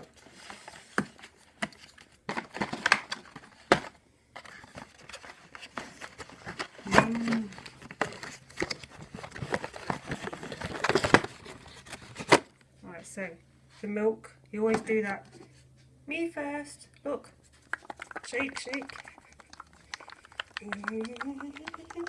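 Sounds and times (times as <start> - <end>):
cardboard and packets crinkling: 4.4 - 12.4, 17.6 - 22.0.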